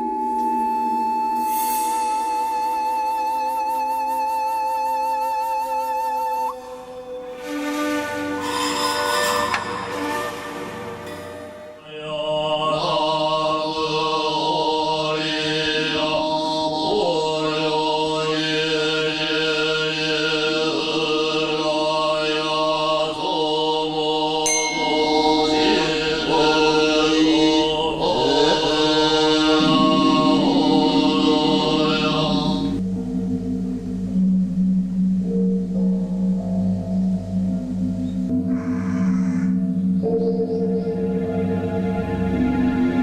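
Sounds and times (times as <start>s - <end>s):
steady drone: 6.3s - 43.0s
mantra-like chanting: 10.2s - 32.8s.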